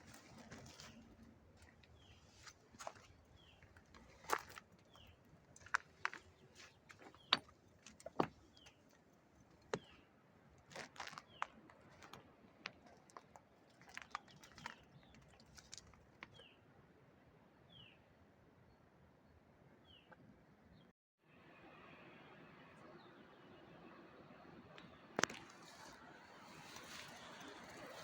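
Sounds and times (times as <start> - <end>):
footsteps on rocky ground: 0.0 - 8.9.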